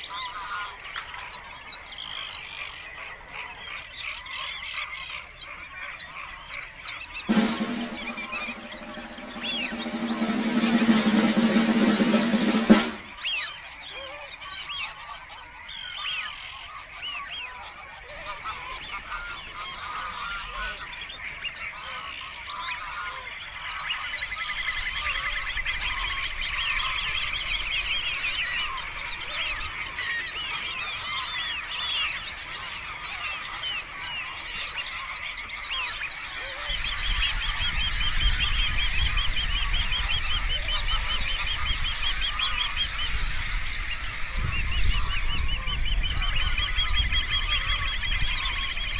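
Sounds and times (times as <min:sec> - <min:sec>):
geese honking: 0:07.3 - 0:13.2.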